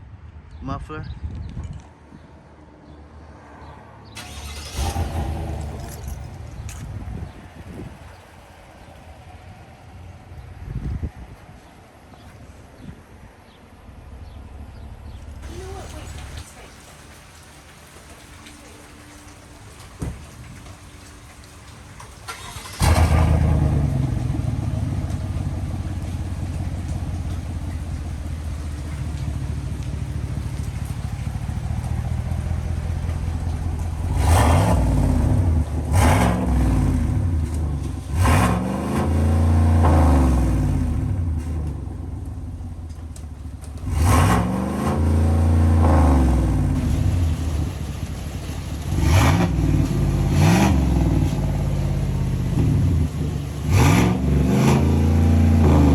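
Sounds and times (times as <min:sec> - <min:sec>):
pickup truck engine starting: 0:04.0 - 0:10.5, 0:14.1 - 0:55.9
engine revving: 0:04.2 - 0:08.0, 0:22.0 - 0:55.9
engine idling: 0:04.2 - 0:10.7, 0:13.9 - 0:55.9.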